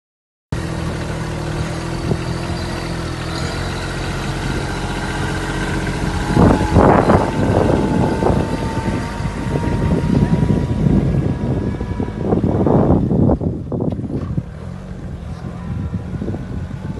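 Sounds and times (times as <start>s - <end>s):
tractor diesel engine running: 0.6s - 16.9s
high-pitched whine: 1.9s - 13.1s.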